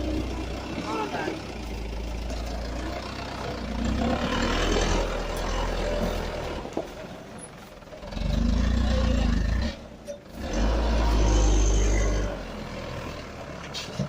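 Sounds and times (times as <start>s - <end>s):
diesel truck engine revving: 0.0s - 14.0s.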